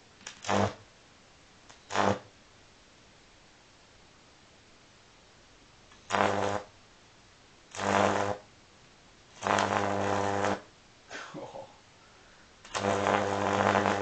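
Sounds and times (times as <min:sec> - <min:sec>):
electric arc buzzing: 0:00.0 - 0:00.9, 0:01.7 - 0:02.3, 0:05.9 - 0:06.8, 0:07.7 - 0:08.5, 0:09.3 - 0:10.7, 0:12.6 - 0:14.0
faint electric crackle: 0:00.0 - 0:11.6, 0:12.4 - 0:14.0.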